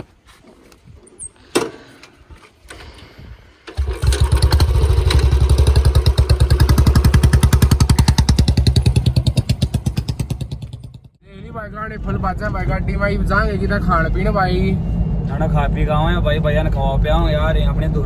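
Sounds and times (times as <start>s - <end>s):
motorcycle engine idling: 3.7s - 11.2s.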